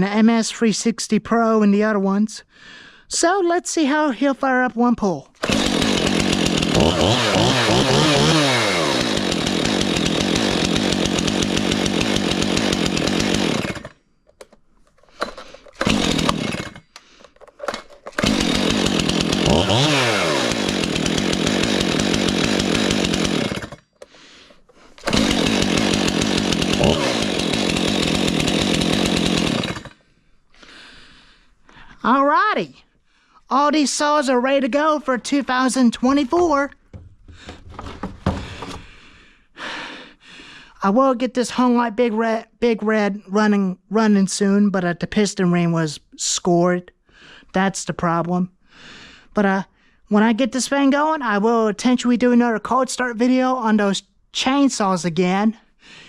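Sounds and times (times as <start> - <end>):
chainsaw revving: 5.4 - 14.0, 15.2 - 17.0, 17.7 - 23.8, 25.0 - 30.0.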